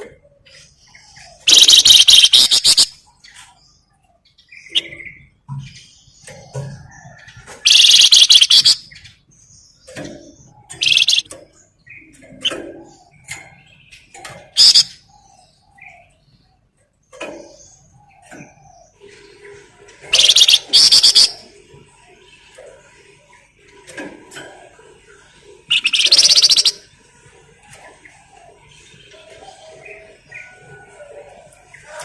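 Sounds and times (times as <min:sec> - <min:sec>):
short bird calls: 0:01.4 - 0:03.0, 0:10.7 - 0:11.3, 0:14.6 - 0:15.0, 0:20.1 - 0:21.4, 0:25.7 - 0:26.8
songbird trilling: 0:01.4 - 0:03.0, 0:07.6 - 0:09.0, 0:10.6 - 0:11.3, 0:14.6 - 0:15.2, 0:20.1 - 0:21.5, 0:25.7 - 0:26.9.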